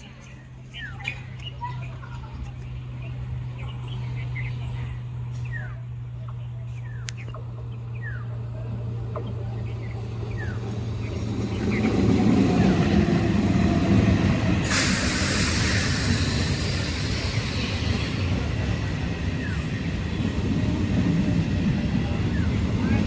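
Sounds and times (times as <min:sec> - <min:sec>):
train wheels rumbling on track: 0:00.0 - 0:23.0
loud hiss of air: 0:14.6 - 0:18.4.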